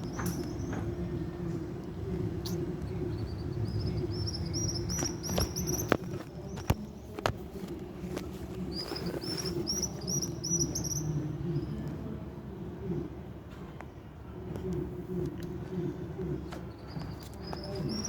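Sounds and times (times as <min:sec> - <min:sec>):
bird chirping: 0:00.0 - 0:01.4, 0:02.3 - 0:06.8, 0:08.7 - 0:11.8, 0:16.7 - 0:18.0
steady low rumble: 0:00.0 - 0:08.8.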